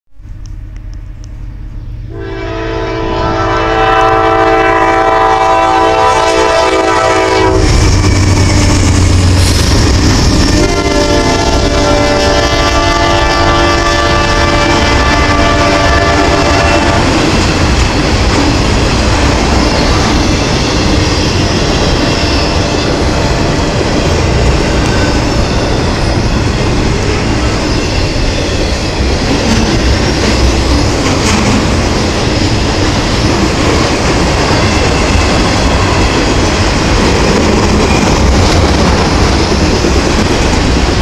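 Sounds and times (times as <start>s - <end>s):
train rail noise: 0.1s - 41.0s
train air horn blasts: 2.1s - 8.8s, 10.4s - 17.3s.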